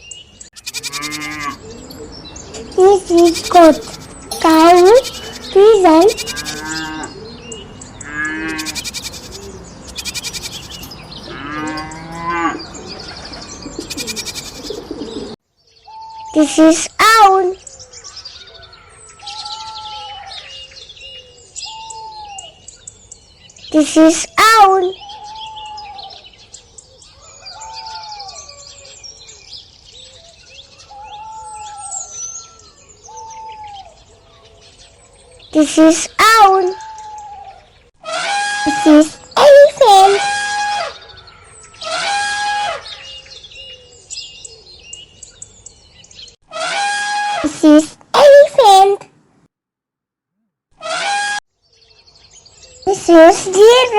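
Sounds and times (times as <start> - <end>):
small birds chirping: 0.0 - 38.0, 38.7 - 40.2, 42.8 - 46.4, 51.6 - 53.9
livestock calling: 0.5 - 1.8, 2.8 - 17.2, 18.0 - 20.6, 23.8 - 26.2, 27.2 - 28.8, 35.6 - 41.1
owl hooting: 4.6 - 7.3, 8.5 - 10.8, 13.6 - 16.4, 21.2 - 22.6, 30.9 - 34.0.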